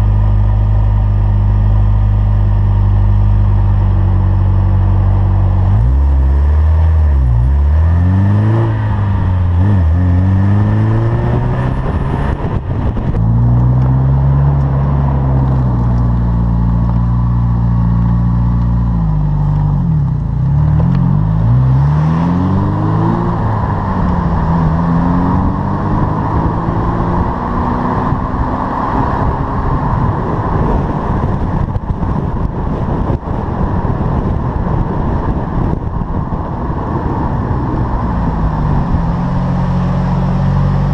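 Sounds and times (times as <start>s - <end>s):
car engine revving: 0.0s - 40.9s
steady rushing sound: 4.8s - 16.8s.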